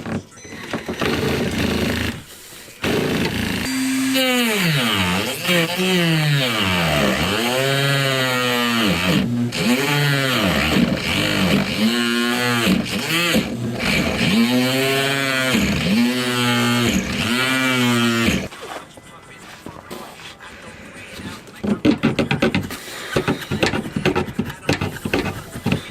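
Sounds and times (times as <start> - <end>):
reciprocating saw cutting: 1.0 - 18.5.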